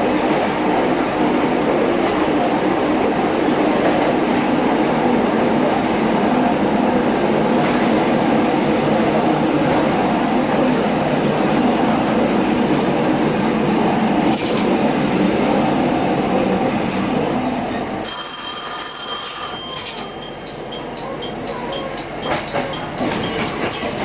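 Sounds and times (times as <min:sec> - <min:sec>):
railcar running rumble: 0:00.0 - 0:24.0
high wheel squeal: 0:19.6 - 0:24.0.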